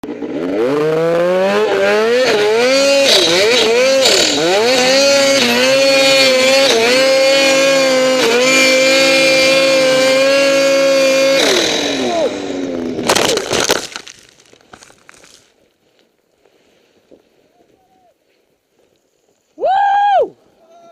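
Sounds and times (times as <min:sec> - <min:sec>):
snowmobile engine accelerating: 0:00.0 - 0:13.1.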